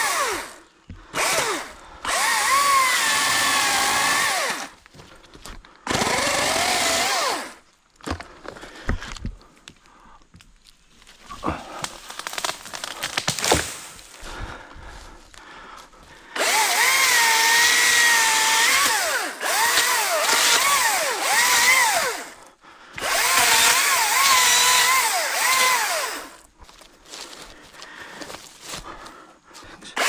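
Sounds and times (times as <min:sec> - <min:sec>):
electric chainsaw cutting: 0:00.0 - 0:00.6, 0:01.2 - 0:04.8, 0:05.9 - 0:07.6, 0:12.2 - 0:14.2, 0:16.4 - 0:22.4, 0:23.0 - 0:26.4.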